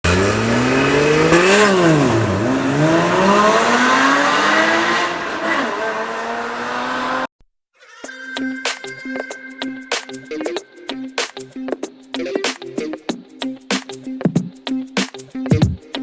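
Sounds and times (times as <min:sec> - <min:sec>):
car engine revving: 0:00.0 - 0:07.3.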